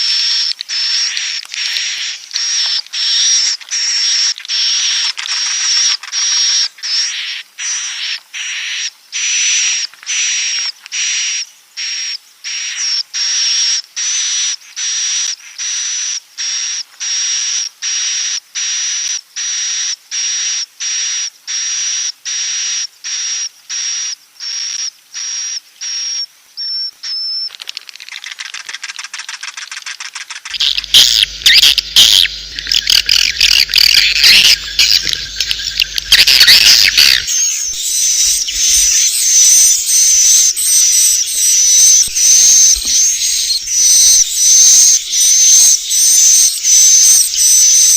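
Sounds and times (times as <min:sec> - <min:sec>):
fast run of fine clicks: 0:27.5 - 0:37.4
rasping hissy bird chirps: 0:30.5 - 0:47.9.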